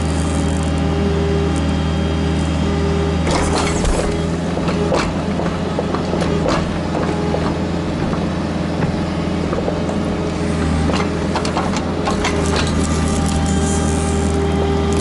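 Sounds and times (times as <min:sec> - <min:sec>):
diesel engine running: 0:00.0 - 0:15.0
knocks and clatter: 0:03.3 - 0:10.1, 0:10.7 - 0:12.8.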